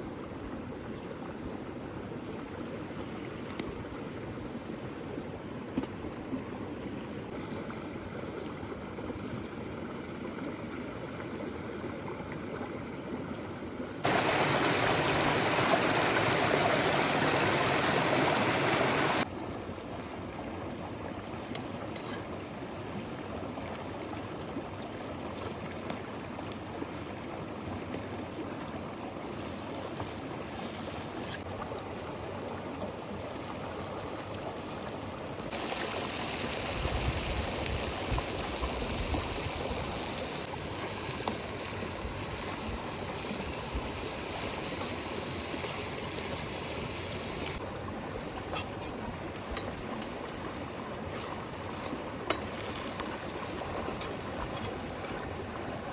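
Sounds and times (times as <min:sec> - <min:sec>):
river water flowing: 0:13.7 - 0:55.9.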